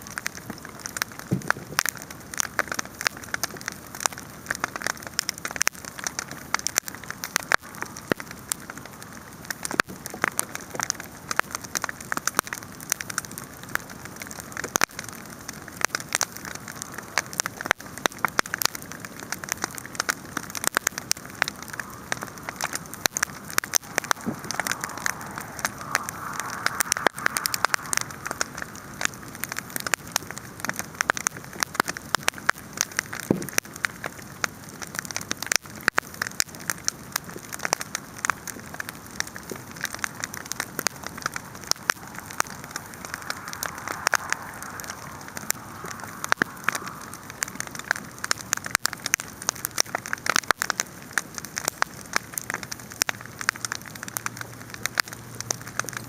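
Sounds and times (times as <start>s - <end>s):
wood fire crackling: 0.0s - 56.0s
flames hissing: 5.8s - 33.7s, 37.2s - 50.4s.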